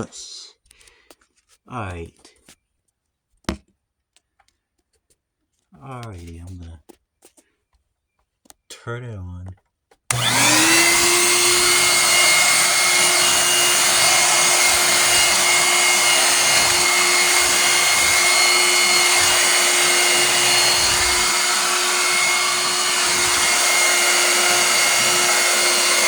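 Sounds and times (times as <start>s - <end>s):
vacuum cleaner running: 10.1s - 26.0s.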